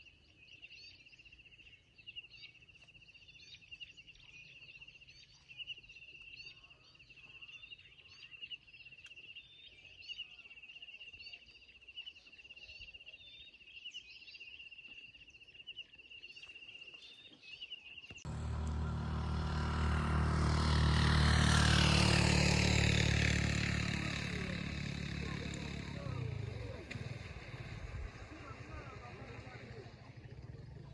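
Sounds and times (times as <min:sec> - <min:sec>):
birds chirping: 0:18.0 - 0:30.9
motorcycle engine: 0:18.3 - 0:30.9
road noise: 0:18.3 - 0:30.9.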